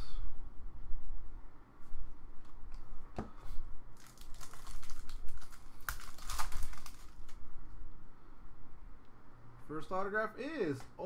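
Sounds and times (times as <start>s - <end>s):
plastic packaging crinkling: 4.0s - 7.4s.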